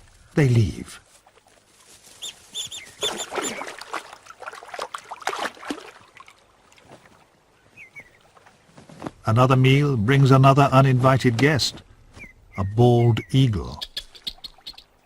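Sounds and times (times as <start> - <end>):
water splashing: 1.0 - 8.9
otters chirping: 2.1 - 4.0, 7.6 - 8.3, 11.1 - 15.0
scuffling: 8.4 - 9.3.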